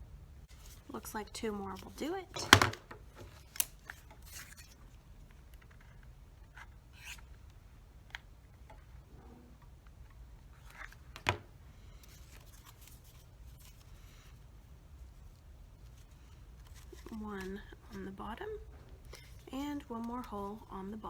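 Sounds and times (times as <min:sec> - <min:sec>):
soft rustles: 0:00.5 - 0:02.3, 0:09.8 - 0:20.8.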